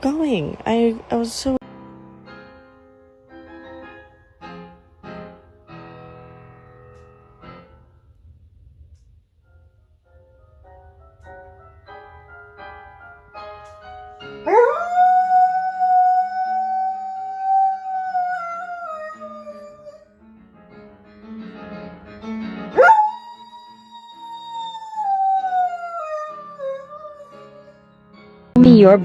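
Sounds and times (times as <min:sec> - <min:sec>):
dog howling: 0:14.5 - 0:20.0, 0:22.8 - 0:27.8.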